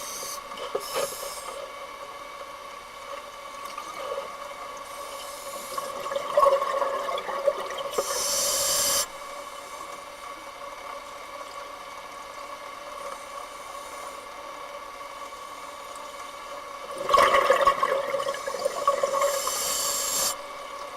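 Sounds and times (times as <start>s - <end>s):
regulator air hiss: 0.0s - 1.8s, 4.8s - 5.9s, 7.9s - 10.0s, 18.4s - 20.6s
underwater bubbling: 3.6s - 9.4s, 16.3s - 20.9s.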